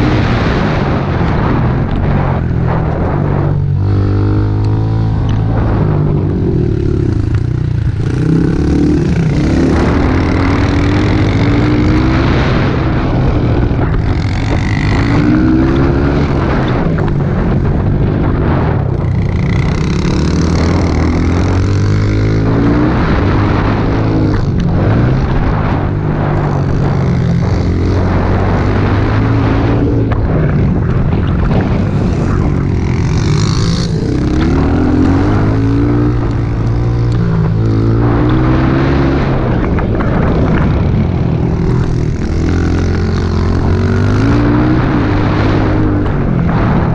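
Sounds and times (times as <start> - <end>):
small motorbike engine revving: 3.5 - 16.9, 19.0 - 25.7, 31.9 - 45.8.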